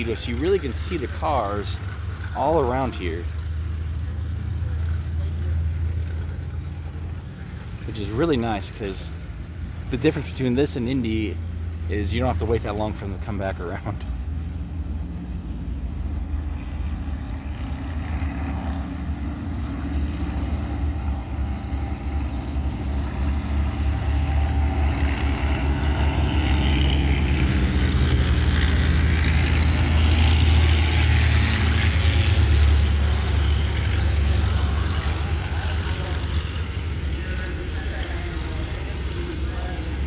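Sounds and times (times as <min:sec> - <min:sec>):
race car engines: 0:00.0 - 0:40.0.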